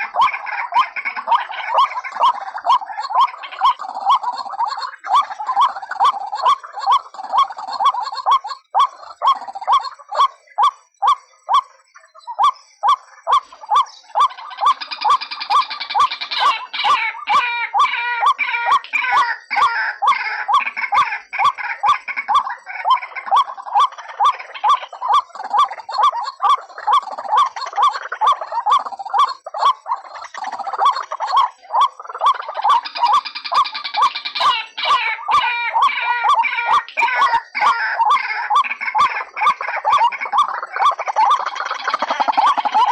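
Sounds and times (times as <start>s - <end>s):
rough chorus of bird calls: 0.0s - 42.9s.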